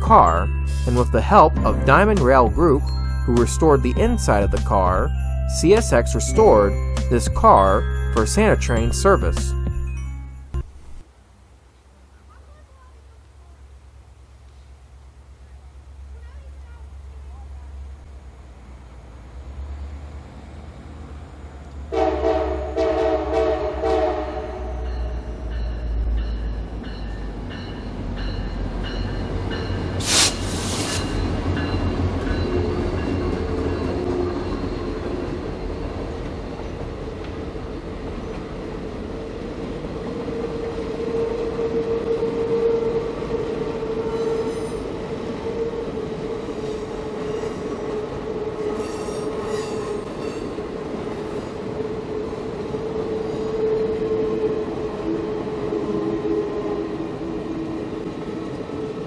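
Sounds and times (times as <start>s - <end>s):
train rolling on steel wheels: 18.6s - 59.0s
wheels squealing against rails: 24.8s - 37.0s, 40.1s - 59.0s.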